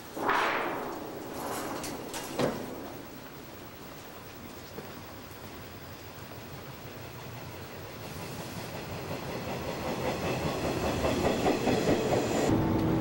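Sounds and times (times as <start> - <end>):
wheels clattering over rail joints: 1.3 - 5.6
electric train approaching: 6.2 - 13.0.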